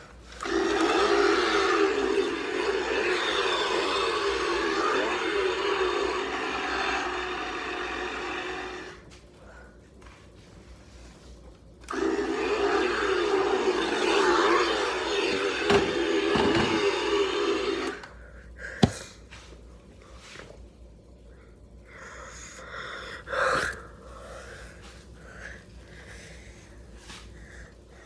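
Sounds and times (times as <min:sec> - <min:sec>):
motor humming: 0:00.0 - 0:09.1, 0:11.8 - 0:18.2.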